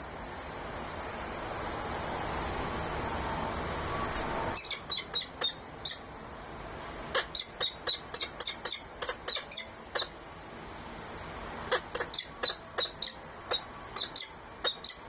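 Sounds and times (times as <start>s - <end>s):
bird chirping: 4.6s - 6.1s, 7.2s - 10.2s, 11.7s - 15.0s.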